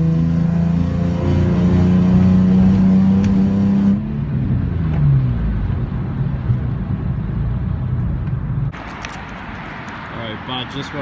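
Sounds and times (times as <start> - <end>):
car engine revving: 0.0 - 7.7.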